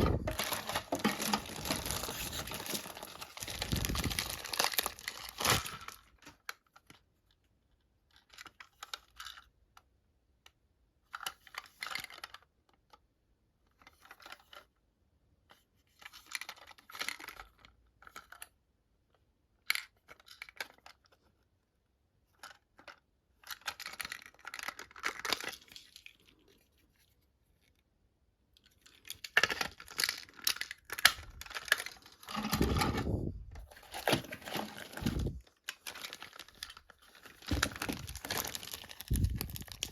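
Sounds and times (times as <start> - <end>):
plastic packaging crinkling: 0.0 - 7.0, 28.6 - 39.9.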